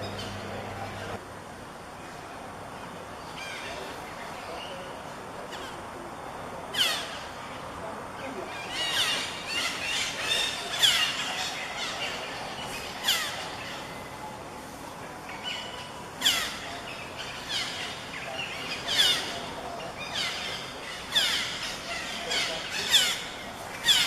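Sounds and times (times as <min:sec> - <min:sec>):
parrots calling: 0:08.5 - 0:13.8, 0:15.4 - 0:24.0.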